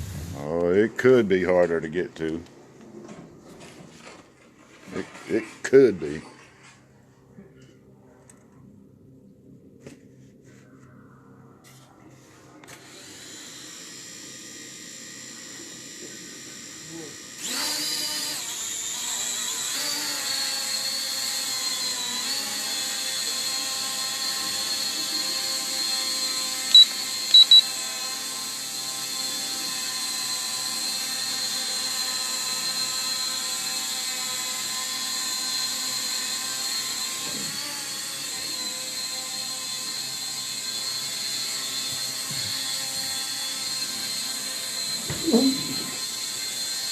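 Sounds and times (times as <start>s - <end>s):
quadcopter motors whining: 0.0s - 0.6s, 12.6s - 46.9s
short high beeps: 26.7s - 27.6s.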